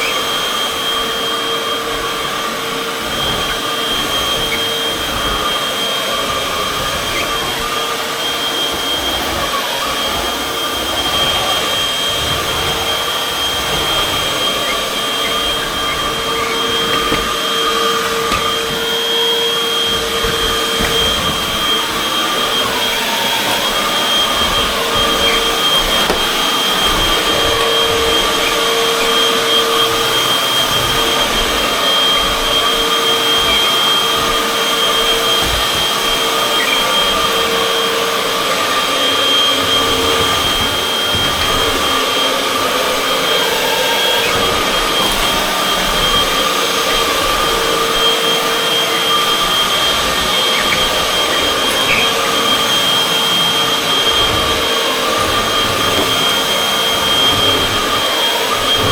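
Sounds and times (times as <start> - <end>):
high-pitched whine: 0.0 - 58.9
vacuum cleaner running: 0.0 - 58.9.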